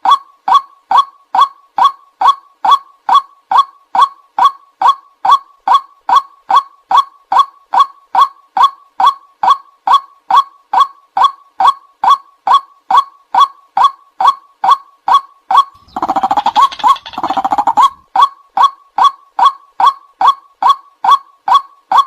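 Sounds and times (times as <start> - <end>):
bird calling kwak notes: 15.8 - 18.0
bird chattering: 15.8 - 18.0.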